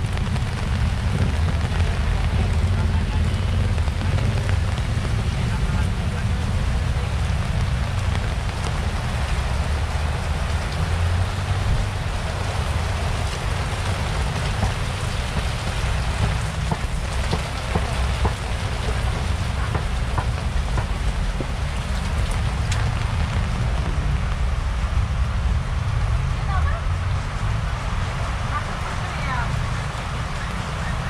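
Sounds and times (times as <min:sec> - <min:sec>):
heavy rain on tarpaulin: 0:00.0 - 0:31.0
steady low rumble: 0:00.0 - 0:31.0
water streaming off edges: 0:00.0 - 0:31.0.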